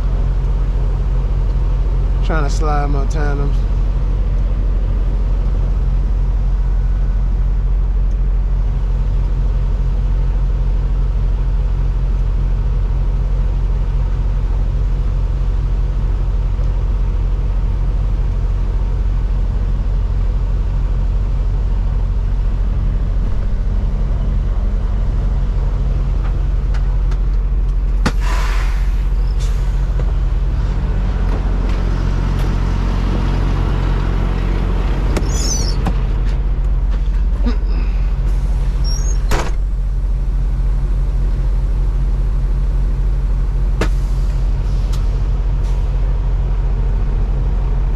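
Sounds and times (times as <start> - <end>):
truck diesel engine running: 0.0 - 47.9
air hiss: 28.1 - 29.8.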